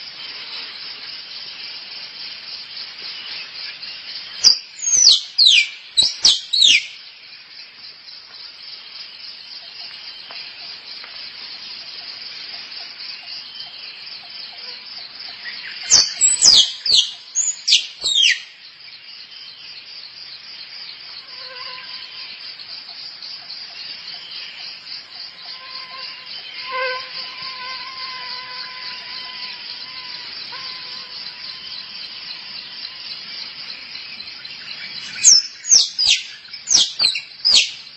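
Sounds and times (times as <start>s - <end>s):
high insect chirring: 2.7s - 7.0s, 10.6s - 19.0s, 21.1s - 37.9s
squirrel calls: 34.9s - 37.8s.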